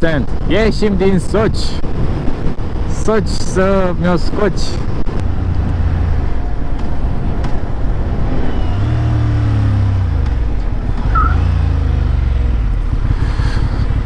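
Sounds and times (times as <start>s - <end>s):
wind noise: 0.0s - 14.0s
motorcycle engine running: 4.9s - 14.0s.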